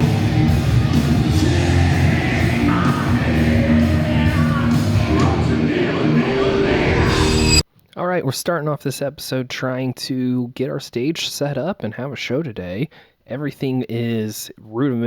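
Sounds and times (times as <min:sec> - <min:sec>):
loud rock music with singer: 0:00.0 - 0:07.6.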